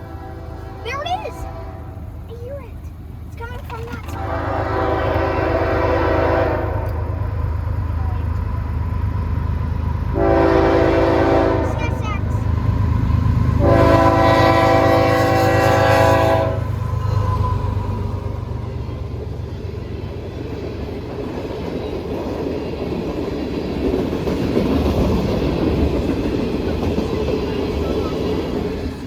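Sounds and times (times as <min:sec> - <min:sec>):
train horn: 0:00.0 - 0:02.1, 0:04.1 - 0:07.4, 0:10.1 - 0:12.0, 0:13.6 - 0:17.9
train rumbling on rails: 0:00.0 - 0:29.0.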